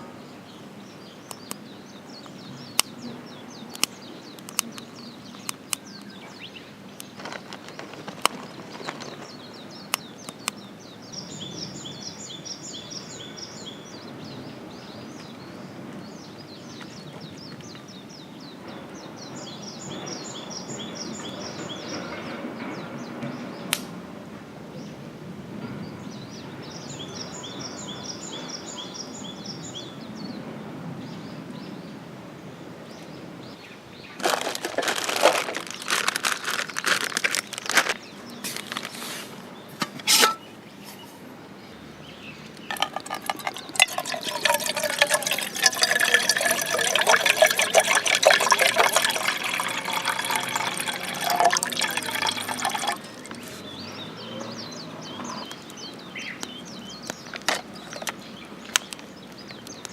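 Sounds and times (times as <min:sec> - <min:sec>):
liquid pouring into a container: 0:42.7 - 0:53.5.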